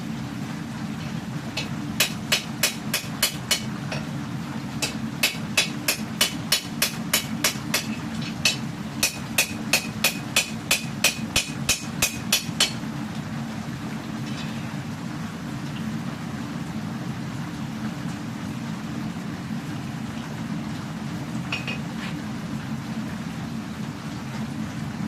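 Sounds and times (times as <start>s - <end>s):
hammer striking steel on anvil: 2.0s - 4.1s, 4.8s - 12.8s.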